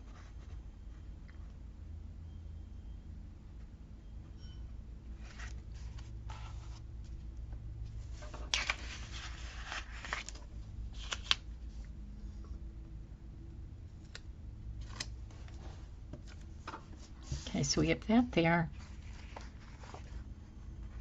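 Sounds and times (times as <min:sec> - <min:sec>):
paper pages rustling: 0:05.2 - 0:07.2, 0:08.0 - 0:11.8, 0:14.8 - 0:17.6, 0:18.7 - 0:21.0.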